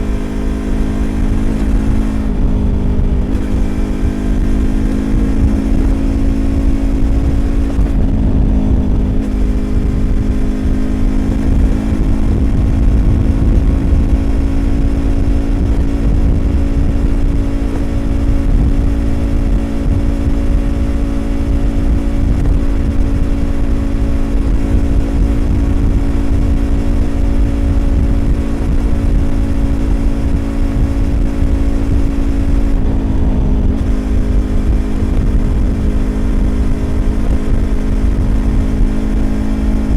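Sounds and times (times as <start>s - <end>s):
motorcycle engine cruising: 0.0s - 39.9s
wind and road rumble: 0.0s - 39.9s.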